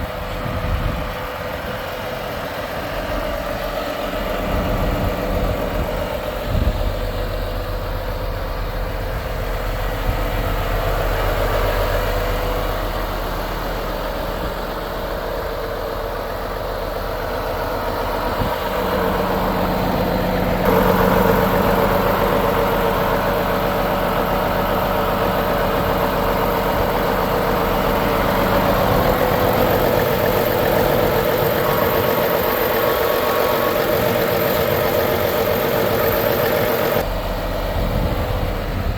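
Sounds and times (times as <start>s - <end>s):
diesel truck engine idling: 0.0s - 38.9s
thin high whine: 26.9s - 37.0s.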